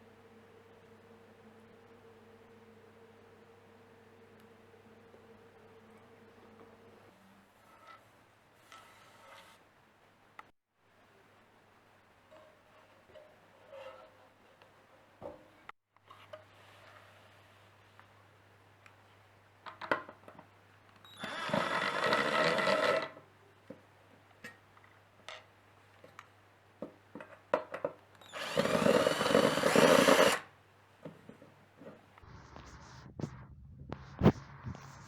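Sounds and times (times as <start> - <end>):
small electric motor whirring: 21.1 - 23.1, 28.2 - 30.5.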